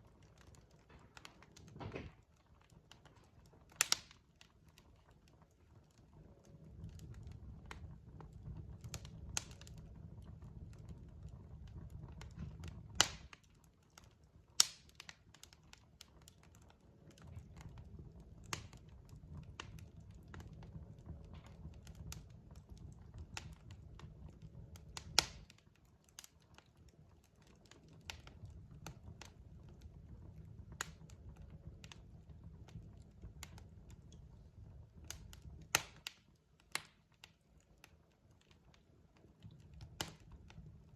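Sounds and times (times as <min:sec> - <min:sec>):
fire popping and snapping: 0:00.0 - 0:40.9
low rumble of flames: 0:00.0 - 0:40.9.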